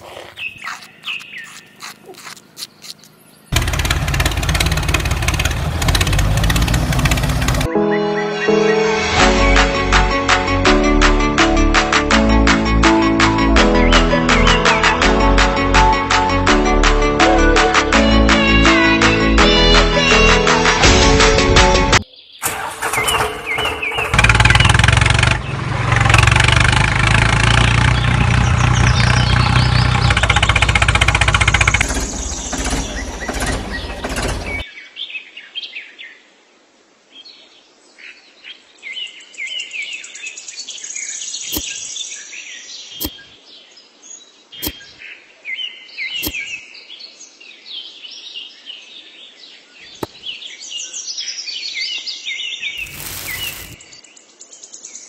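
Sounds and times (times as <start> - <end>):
birds chirping: 0.0 - 8.8, 22.0 - 25.9, 27.6 - 35.0, 38.6 - 47.1, 49.5 - 55.0
engine running: 3.5 - 7.7, 22.4 - 34.6, 52.8 - 53.8.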